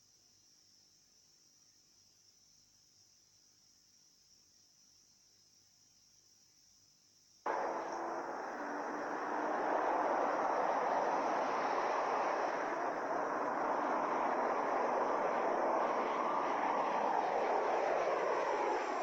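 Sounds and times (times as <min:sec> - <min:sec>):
aircraft rushing noise: 0:07.5 - 0:19.0.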